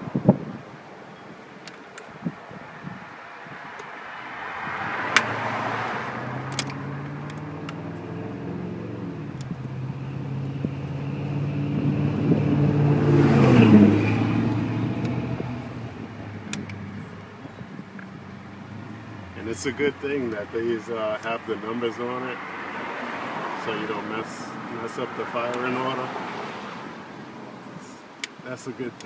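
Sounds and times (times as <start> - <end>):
car passing by: 2.5 - 17.4, 18.0 - 28.6
sharp clicks: 6.4 - 7.8, 16.4 - 16.9.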